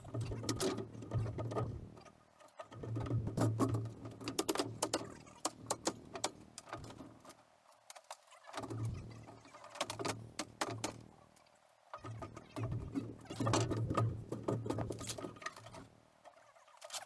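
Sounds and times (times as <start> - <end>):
wood and metal clattering: 12.1 - 15.9.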